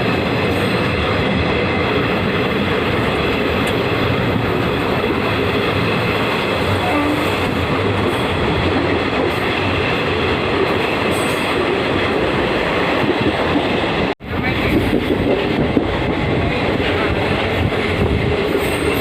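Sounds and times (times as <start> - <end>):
train wheels on rails: 0.0 - 19.0.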